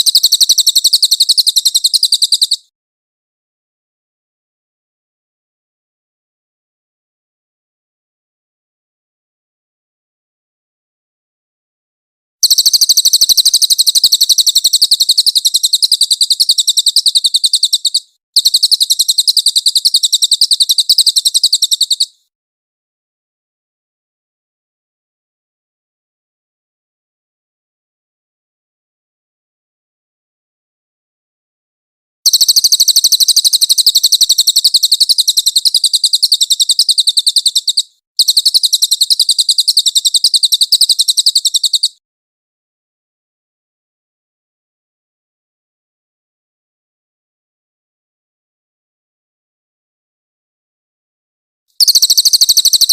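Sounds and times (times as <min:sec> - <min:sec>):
bird singing rapid trill: 0:00.0 - 0:02.7, 0:12.4 - 0:22.2, 0:32.3 - 0:42.0, 0:51.8 - 0:52.9
songbird rapid high-pitched song: 0:00.0 - 0:02.7, 0:12.4 - 0:22.2, 0:32.3 - 0:42.0, 0:51.8 - 0:52.9.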